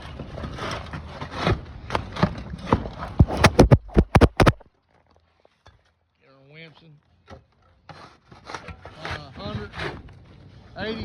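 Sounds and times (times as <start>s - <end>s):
scraping: 3.0s - 4.6s
irregular knocking: 3.2s - 4.6s
sharp strikes: 3.2s - 4.6s.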